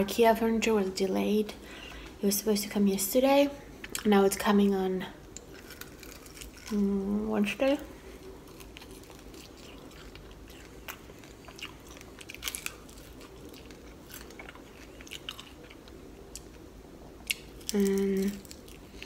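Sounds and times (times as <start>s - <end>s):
crunches while chewing: 5.3s - 6.8s, 8.2s - 16.6s, 17.2s - 19.0s
chewing mouth sounds: 8.2s - 16.6s.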